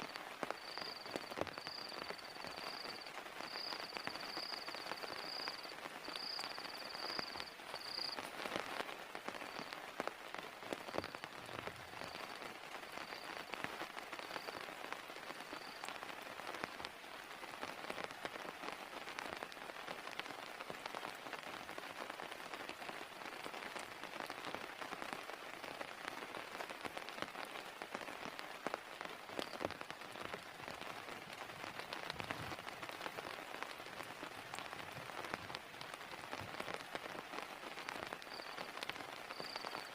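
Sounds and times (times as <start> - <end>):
rain drops ticking: 0.0 - 39.9.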